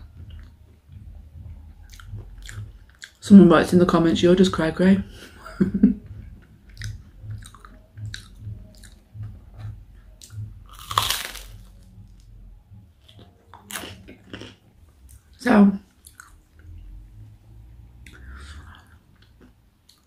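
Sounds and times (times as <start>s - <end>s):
person chewing food: 0.1s - 3.2s, 6.2s - 12.3s, 13.0s - 15.3s, 15.9s - 16.8s, 18.0s - 20.0s
crisp crunches: 10.7s - 11.8s.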